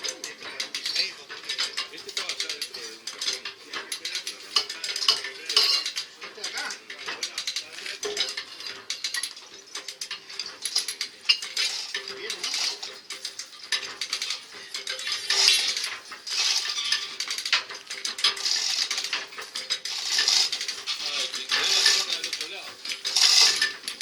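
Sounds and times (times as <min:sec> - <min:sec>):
metallic clinking and clattering: 0:00.0 - 0:24.0
scraping: 0:13.7 - 0:24.0.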